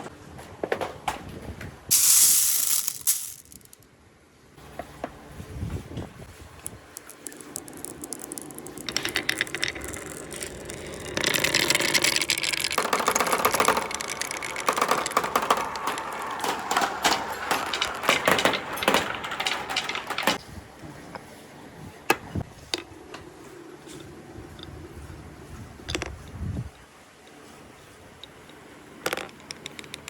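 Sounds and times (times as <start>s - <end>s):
marbles clattering down a track: 1.9s - 3.8s, 6.6s - 20.4s.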